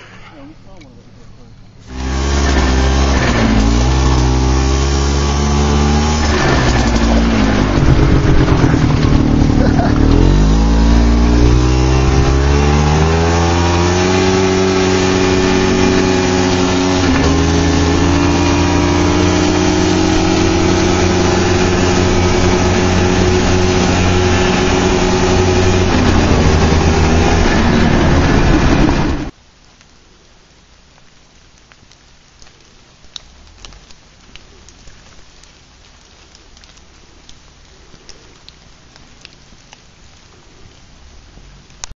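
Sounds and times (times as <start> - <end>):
car engine accelerating: 1.8 - 29.3.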